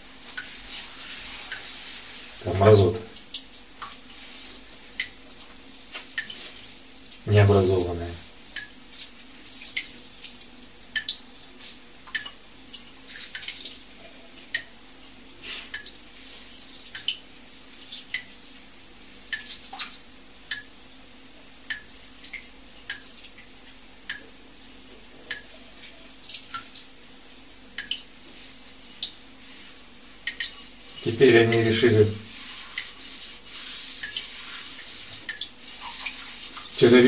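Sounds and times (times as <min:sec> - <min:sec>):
faint steady hum: 0:00.0 - 0:37.0
light drip-like clicks: 0:03.1 - 0:04.1, 0:05.0 - 0:06.4, 0:07.8 - 0:11.3, 0:12.0 - 0:13.8, 0:14.4 - 0:14.7, 0:15.7 - 0:16.0, 0:16.7 - 0:17.2, 0:17.9 - 0:18.6, 0:19.3 - 0:20.8, 0:21.6 - 0:24.4, 0:25.3 - 0:25.5, 0:26.2 - 0:26.9, 0:27.8 - 0:28.1, 0:29.0 - 0:29.3, 0:30.2 - 0:30.6, 0:35.2 - 0:36.7.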